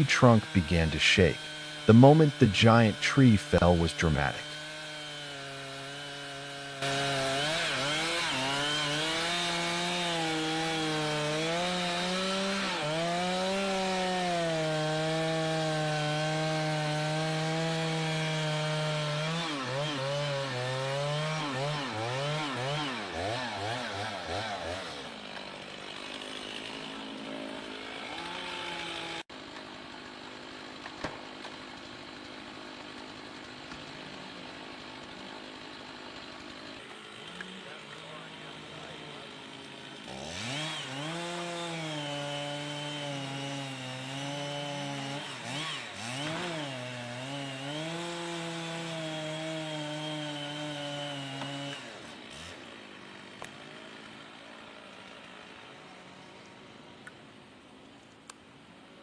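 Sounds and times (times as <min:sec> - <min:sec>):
chainsaw cutting into tree: 0:00.0 - 0:57.2.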